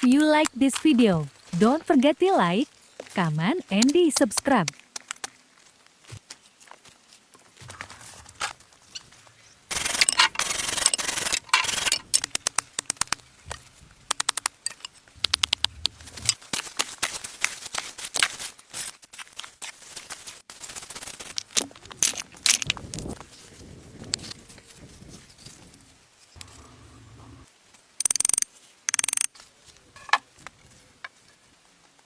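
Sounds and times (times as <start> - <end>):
scraping and rubbing: 9.7 - 12.3, 14.6 - 19.0.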